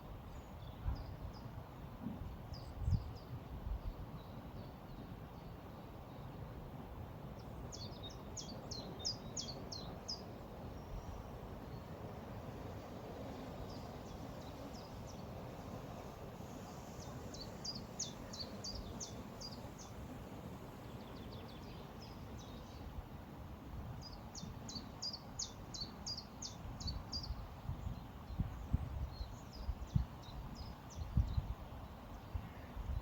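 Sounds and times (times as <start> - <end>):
river flowing: 7.0 - 26.6.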